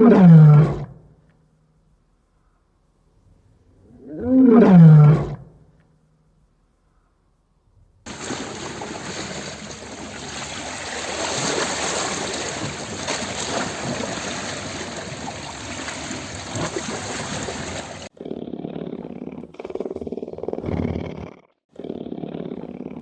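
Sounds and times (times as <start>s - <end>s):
rushing water: 8.1s - 18.1s.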